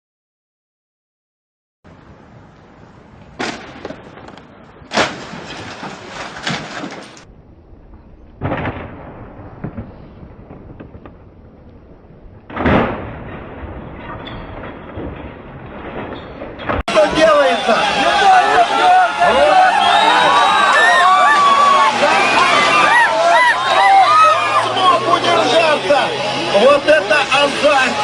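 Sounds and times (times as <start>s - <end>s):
road and engine noise: 1.9s - 6.2s, 21.4s - 28.0s
vehicle collision bangs and crunches: 3.4s - 7.3s, 12.4s - 17.3s.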